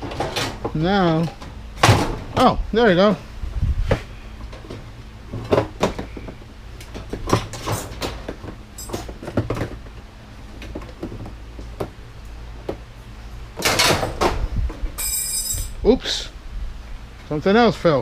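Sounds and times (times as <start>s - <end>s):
knocks and clanks: 0.0s - 2.5s
steady low hum: 0.0s - 18.0s.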